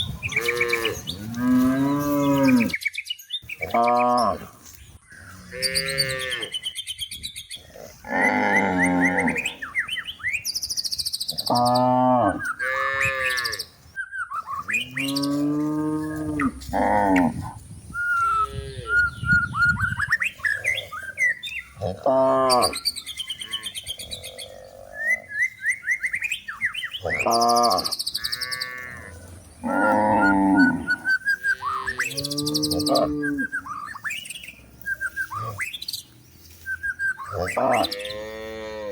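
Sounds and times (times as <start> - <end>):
small birds chirping: 0.0 - 38.9
cattle mooing: 0.3 - 2.8, 8.0 - 9.5, 15.0 - 17.4, 27.1 - 33.5.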